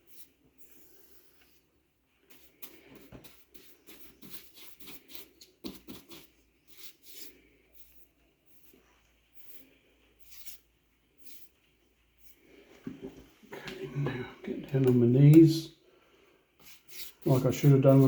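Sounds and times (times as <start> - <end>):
paintbrush strokes on wood: 0.0 - 12.7, 16.6 - 18.0.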